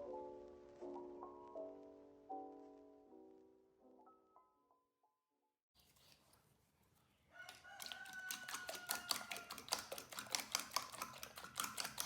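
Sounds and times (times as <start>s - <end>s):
rooster crowing: 7.3s - 9.6s.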